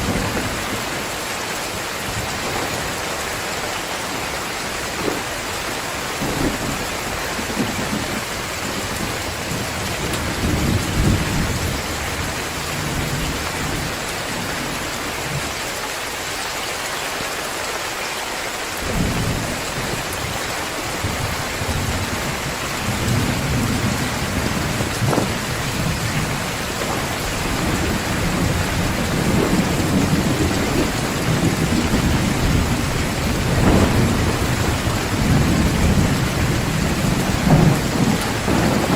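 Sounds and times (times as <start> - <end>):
rolling thunder: 0.0 - 1.2, 2.0 - 15.5, 18.8 - 38.9
heavy rain: 0.0 - 38.9.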